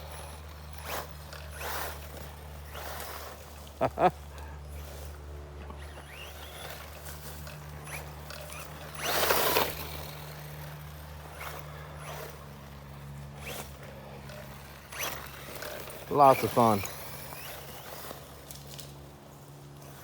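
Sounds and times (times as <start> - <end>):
rc car driving on dirt: 0.0 - 20.0.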